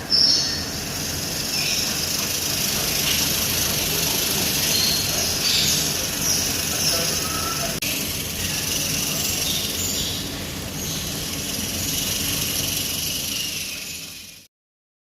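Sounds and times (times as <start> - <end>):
porcupine quills rattling: 0.8 - 14.4.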